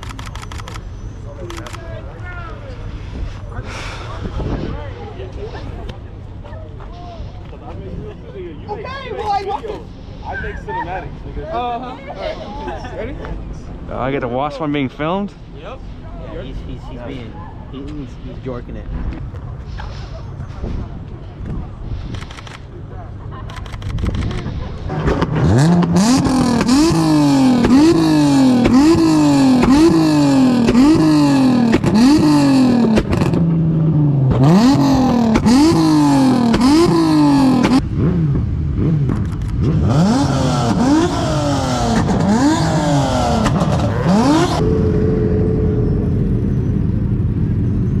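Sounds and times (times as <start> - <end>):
car engine revving then idling: 24.9 - 48.0.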